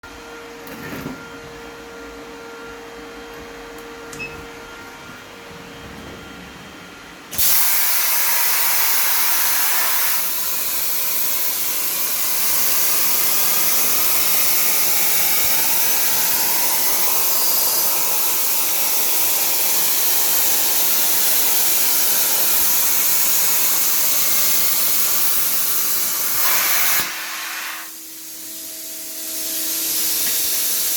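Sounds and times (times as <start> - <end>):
low machine hum: 0.0 - 7.4
plasma torch hissing: 7.3 - 30.9.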